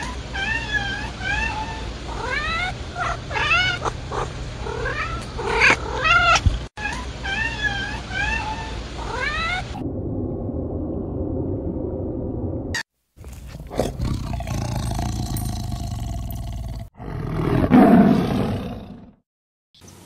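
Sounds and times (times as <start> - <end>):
steady low hum: 7.6 - 16.9.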